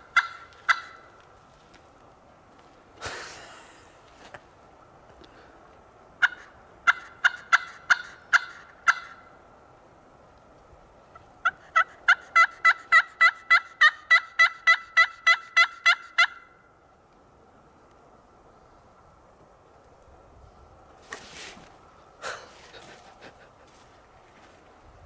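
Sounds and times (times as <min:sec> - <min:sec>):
turkey yelps: 0:00.1 - 0:01.1, 0:06.2 - 0:09.3, 0:11.4 - 0:16.6.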